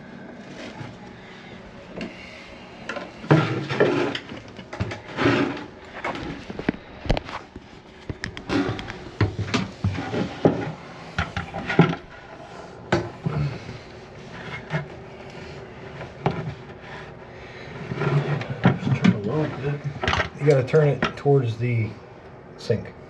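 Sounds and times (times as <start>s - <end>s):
hands clicking and knocking plumbing: 8.0s - 12.1s.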